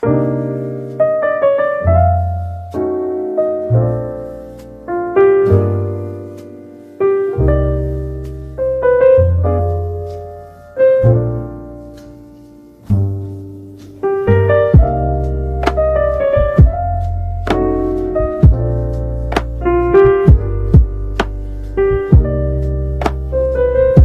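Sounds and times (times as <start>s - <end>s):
slow gentle piano music: 0.0s - 24.0s.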